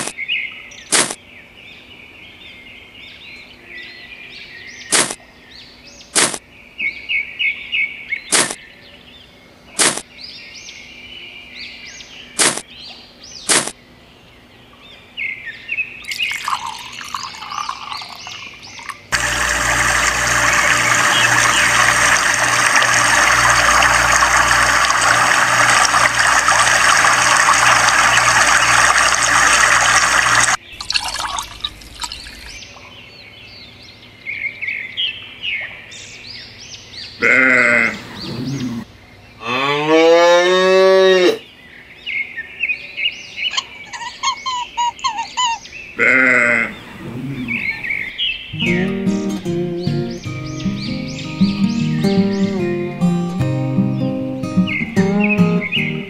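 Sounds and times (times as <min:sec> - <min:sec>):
birds chirping: 0:00.0 - 0:39.5, 0:41.4 - 0:56.0
water pouring into pool: 0:16.0 - 0:32.7
low pulsing pump hum: 0:18.6 - 0:33.2.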